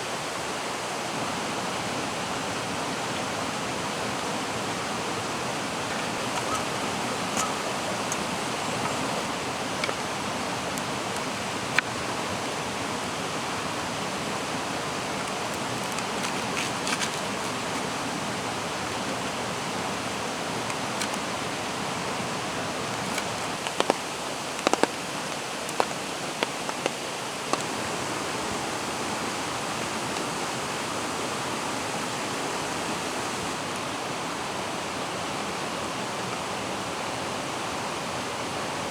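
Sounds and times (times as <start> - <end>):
mountain stream rushing: 0.0 - 38.9
sharp ticks and pops: 23.0 - 27.8.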